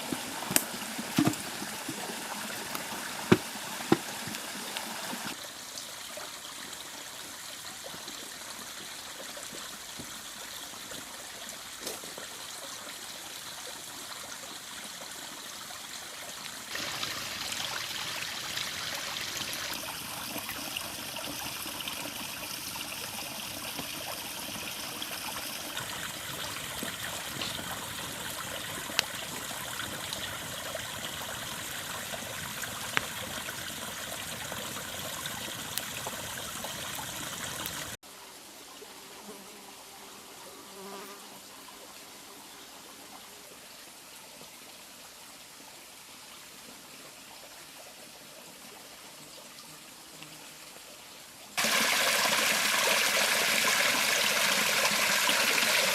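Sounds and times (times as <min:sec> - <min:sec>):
river water flowing over stones: 0:00.0 - 0:38.6, 0:50.7 - 0:55.9.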